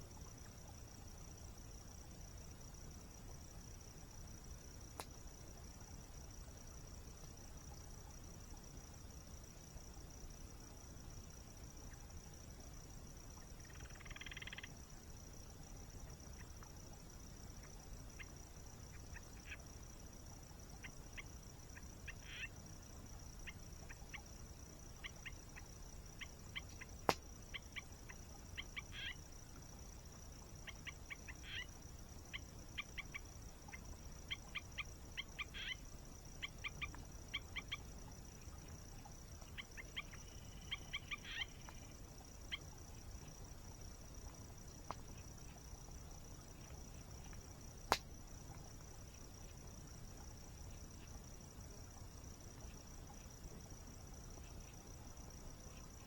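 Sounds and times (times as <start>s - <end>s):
high insect drone: 0.0s - 56.0s
campfire pop: 26.7s - 27.3s, 47.3s - 48.6s.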